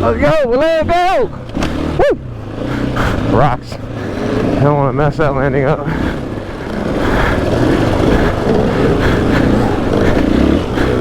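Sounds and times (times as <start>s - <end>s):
dirt bike engine under throttle: 0.0s - 11.0s.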